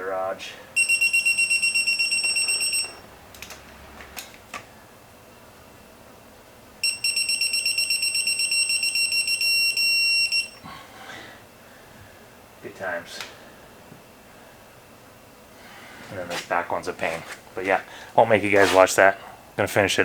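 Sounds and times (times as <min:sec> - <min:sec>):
torque wrench beeping: 0:00.8 - 0:03.1, 0:06.8 - 0:10.6.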